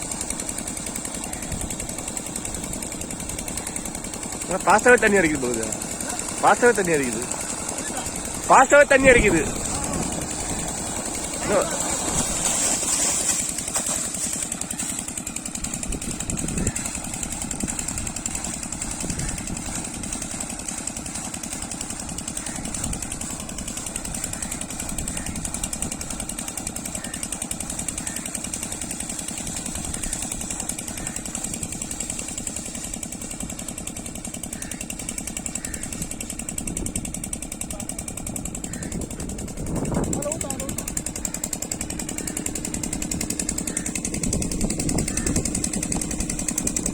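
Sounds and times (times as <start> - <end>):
air compressor engine knocking: 0.0 - 46.9.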